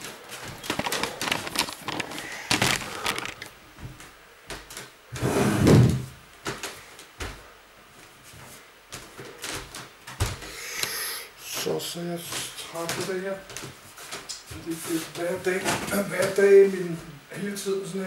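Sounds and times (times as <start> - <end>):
handling clicks and knocks: 0.4 - 3.5.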